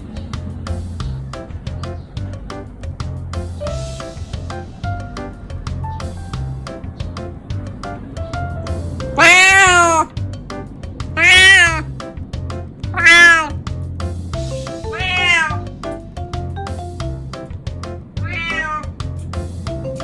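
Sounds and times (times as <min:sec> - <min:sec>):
background music with steady beat: 0:00.0 - 0:20.0
cat meowing: 0:09.0 - 0:10.2, 0:11.2 - 0:11.9, 0:12.9 - 0:13.6, 0:14.7 - 0:15.7, 0:18.2 - 0:19.0.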